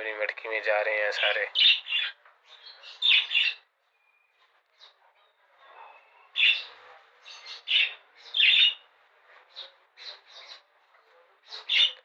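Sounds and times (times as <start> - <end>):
budgerigars chirping and squawking: 0.6 - 3.6, 5.9 - 8.8, 9.5 - 10.7, 11.4 - 12.0.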